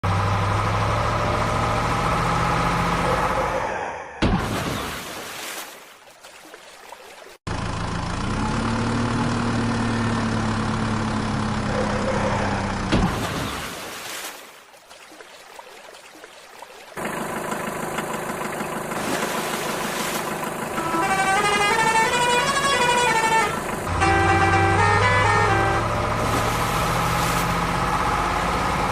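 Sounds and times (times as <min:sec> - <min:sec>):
truck engine running: 0:00.0 - 0:03.6, 0:07.5 - 0:13.0, 0:17.0 - 0:28.9
musical horn tune: 0:20.7 - 0:26.4.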